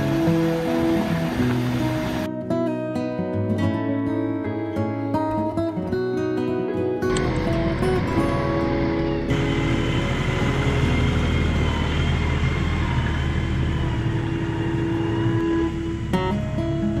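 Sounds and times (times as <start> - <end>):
vehicle engine droning: 0.0 - 2.3, 7.1 - 17.0.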